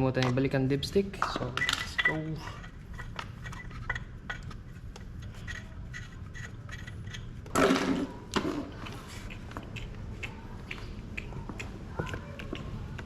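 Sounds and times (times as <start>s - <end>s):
dipstick cap clicking and rubbing: 1.2s - 7.6s.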